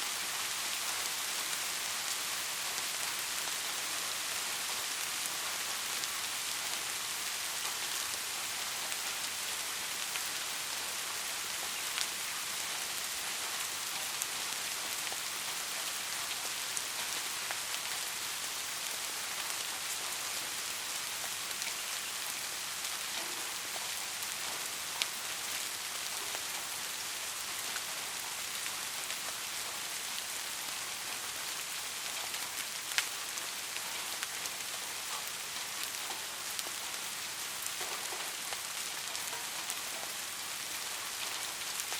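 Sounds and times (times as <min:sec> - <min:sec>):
soft rain falling: 0:00.0 - 0:41.9
raindrops pattering: 0:00.1 - 0:41.9.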